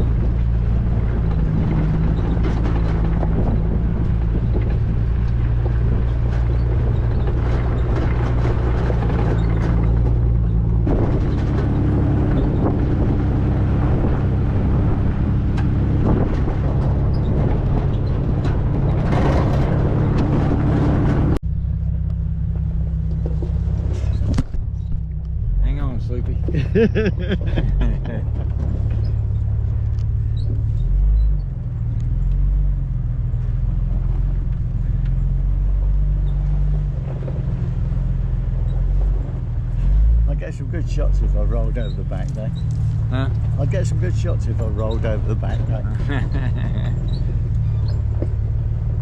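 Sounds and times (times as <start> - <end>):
car engine running: 0.0 - 49.0
knocks and rattles over bumps: 0.0 - 49.0
tyre noise: 22.6 - 32.5.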